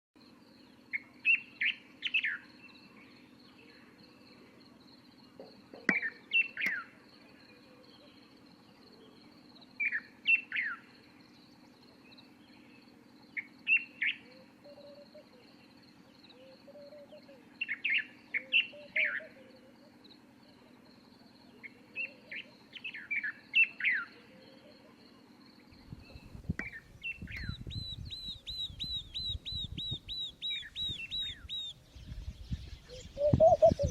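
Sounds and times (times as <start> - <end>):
birds singing: 0.6 - 33.9.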